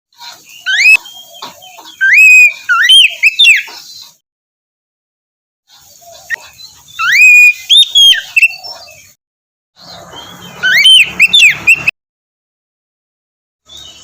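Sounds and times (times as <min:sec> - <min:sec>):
bird singing whistled phrases: 0:00.5 - 0:01.2, 0:01.9 - 0:03.7, 0:07.0 - 0:08.7, 0:10.6 - 0:11.9.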